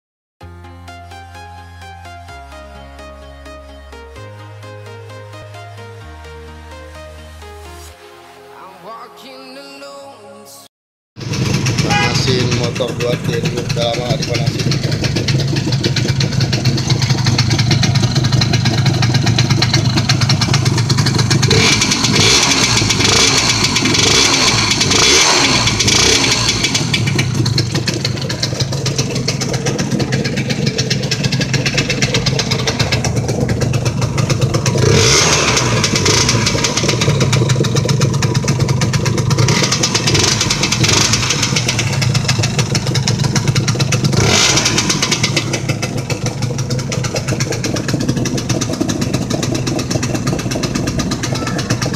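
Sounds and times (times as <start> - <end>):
two-stroke engine idling and revving: 11.2 - 51.9.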